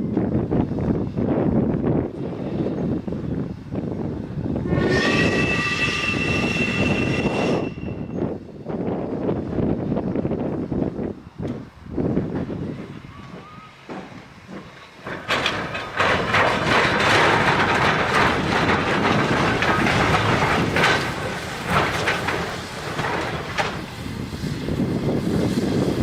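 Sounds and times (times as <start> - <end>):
train passing rushing noise: 0.0 - 26.0
wheels knocking over track: 13.3 - 24.2.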